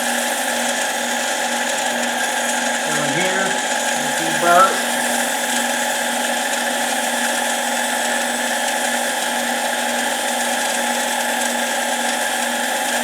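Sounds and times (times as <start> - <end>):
lathe motor whining: 1.6 - 5.8.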